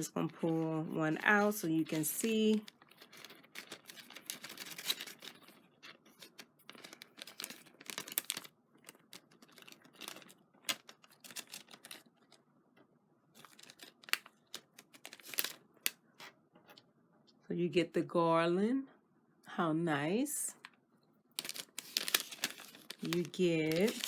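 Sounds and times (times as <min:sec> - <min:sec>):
bag crinkling and rustling: 0:00.2 - 0:12.4, 0:13.4 - 0:16.3, 0:21.3 - 0:24.0.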